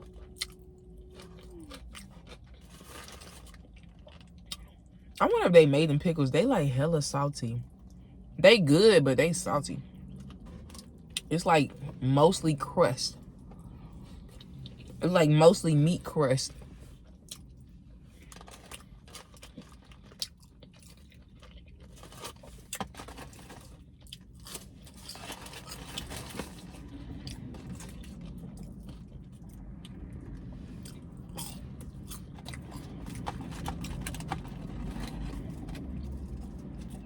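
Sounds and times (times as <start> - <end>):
person chewing crunchy food: 0.0 - 5.2, 18.2 - 37.0.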